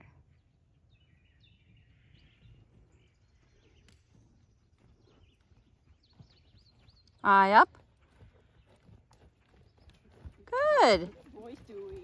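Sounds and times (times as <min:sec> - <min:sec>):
faint bird chirps: 0:00.0 - 0:07.3.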